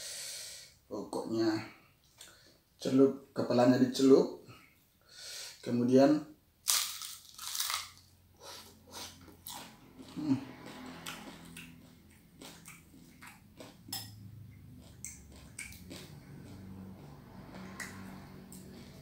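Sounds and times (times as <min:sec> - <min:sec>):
crunchy chewing and mouth smacks: 0:06.7 - 0:19.0.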